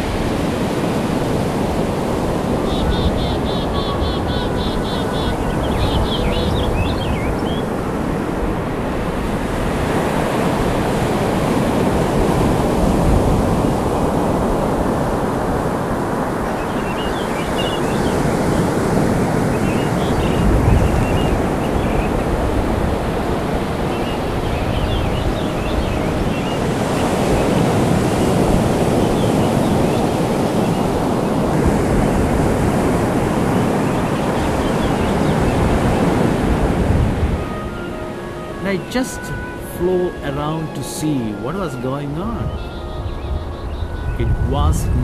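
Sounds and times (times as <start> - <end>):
wind buffeting microphone: 0.0 - 39.6, 42.2 - 45.0
ocean surf on a beach: 0.0 - 45.0
short high calls: 2.5 - 8.3, 37.4 - 45.0.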